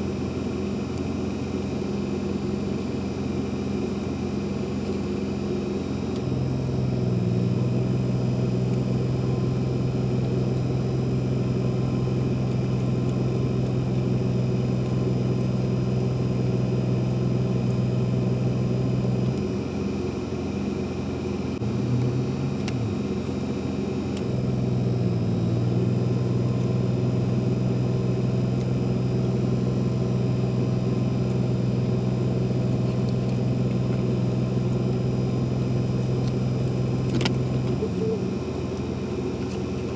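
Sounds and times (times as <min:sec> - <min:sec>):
low engine hum: 0:00.0 - 0:39.9.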